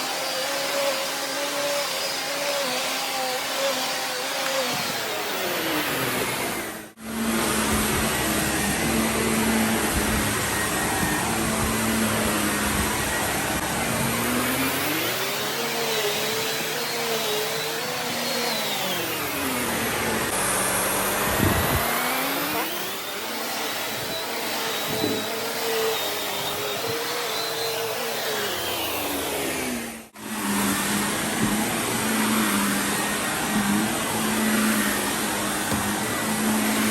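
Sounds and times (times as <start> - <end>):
vacuum cleaner running over carpet: 5.5 - 16.8, 19.2 - 23.0, 29.2 - 36.9.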